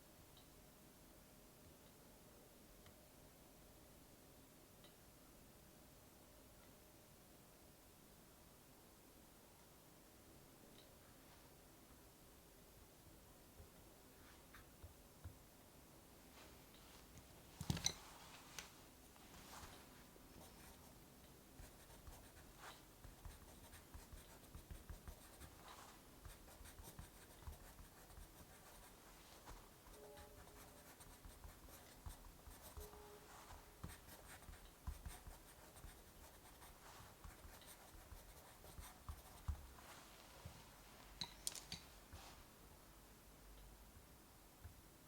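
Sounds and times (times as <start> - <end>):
pen scratching on paper: 21.6 - 39.6.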